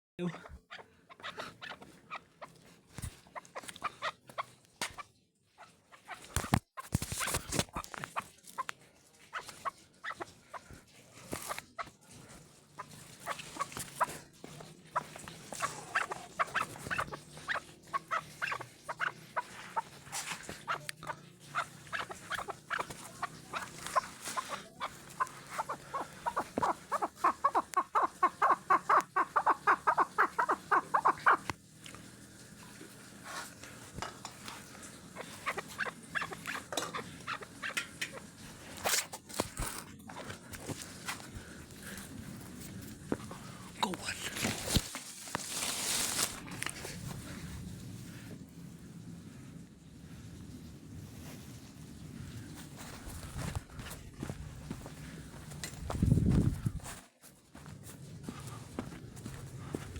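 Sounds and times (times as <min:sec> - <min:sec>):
partridge clucking: 0:00.2 - 0:32.0, 0:33.3 - 0:41.4.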